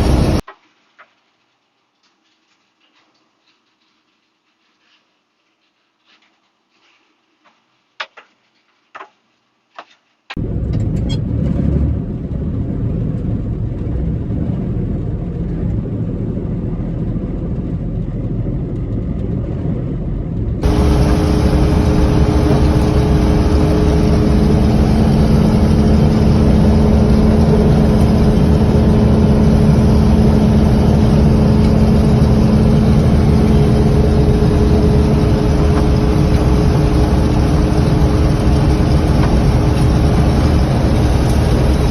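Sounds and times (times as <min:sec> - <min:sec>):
engine running: 0:00.0 - 0:00.4, 0:10.4 - 0:41.9
steady hum: 0:00.0 - 0:00.4, 0:10.4 - 0:41.9.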